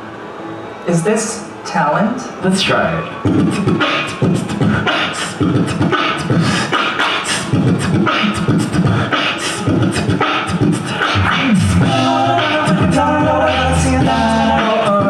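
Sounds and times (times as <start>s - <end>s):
voices singing harmony: 3.0s - 15.0s
beatboxing vocal drum beat: 3.2s - 15.0s.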